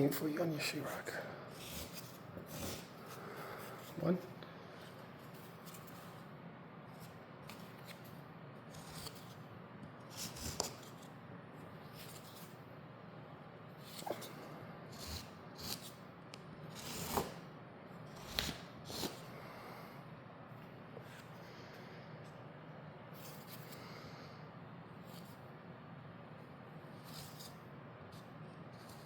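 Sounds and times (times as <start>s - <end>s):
faint steady hum: 0.0s - 29.0s
putty knife scraping compound: 1.5s - 4.1s, 8.7s - 9.4s, 10.0s - 11.1s, 13.8s - 16.0s, 16.7s - 17.4s, 18.1s - 19.3s, 26.9s - 29.0s.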